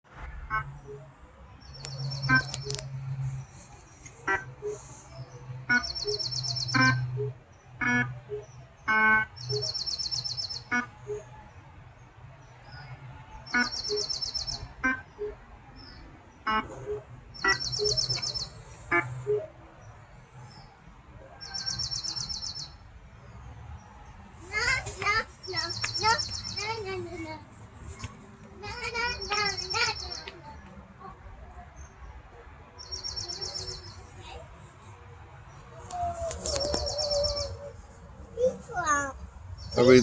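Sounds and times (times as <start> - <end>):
bird high fast trill: 5.8 - 7.0, 16.9 - 18.6, 24.5 - 27.0, 36.4 - 37.8.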